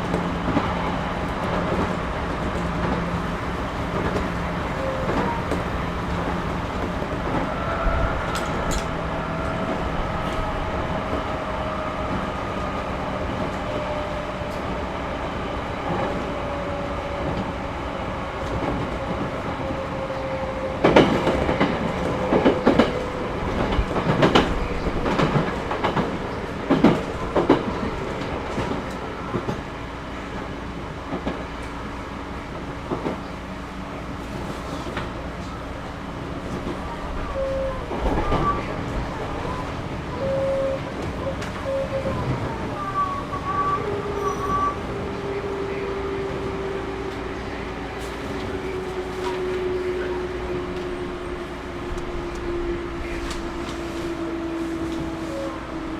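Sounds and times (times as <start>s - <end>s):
train running rumble: 0.0s - 55.9s
wheels clacking over rail joints: 20.8s - 29.6s.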